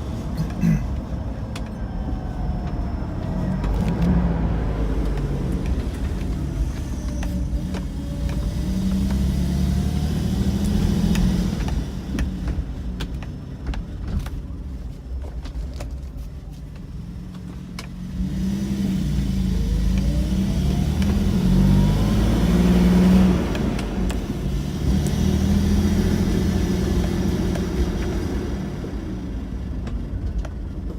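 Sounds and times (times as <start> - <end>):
car engine revving: 2.4 - 12.6, 17.8 - 29.2.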